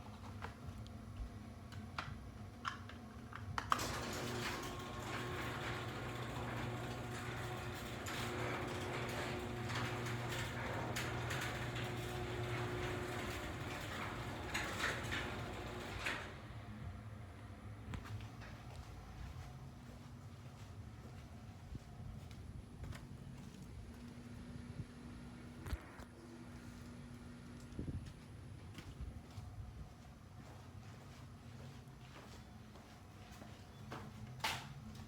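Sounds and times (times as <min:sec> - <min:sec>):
garage door opener clicks: 0:02.7 - 0:16.7
garage door motor humming: 0:03.6 - 0:17.3.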